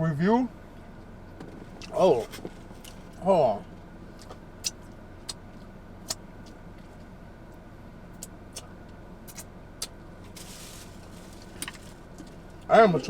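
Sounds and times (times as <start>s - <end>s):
car cabin hum: 0.0s - 13.0s.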